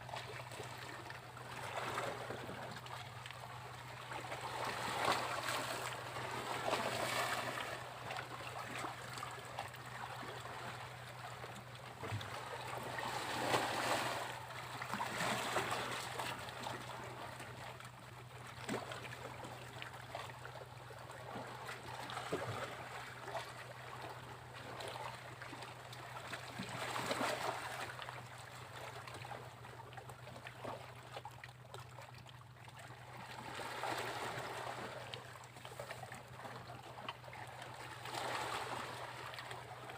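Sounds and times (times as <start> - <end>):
sea waves breaking on beach: 12.8 - 14.4.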